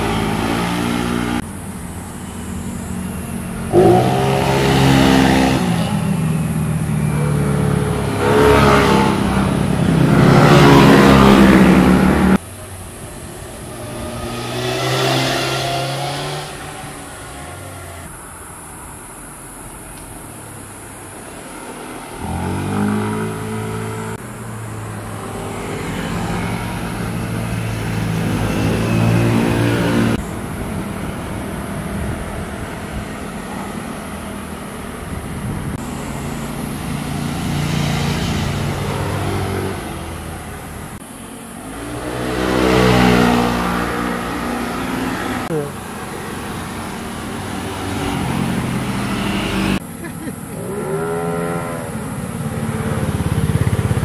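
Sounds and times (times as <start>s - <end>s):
motorcycles revving past: 0.0s - 1.4s, 3.4s - 12.4s, 13.5s - 18.1s, 21.6s - 24.2s, 24.9s - 30.3s, 35.5s - 40.7s, 41.4s - 54.0s.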